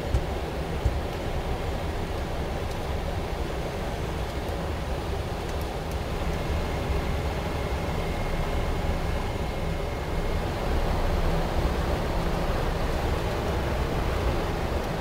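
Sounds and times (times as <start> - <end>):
airplane cabin engine rumble: 0.0 - 15.0
faint high whine: 6.2 - 14.7.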